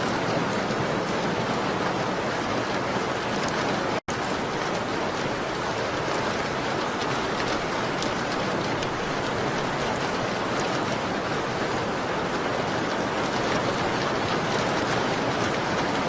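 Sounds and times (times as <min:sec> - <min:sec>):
dense rain: 0:00.0 - 0:16.0.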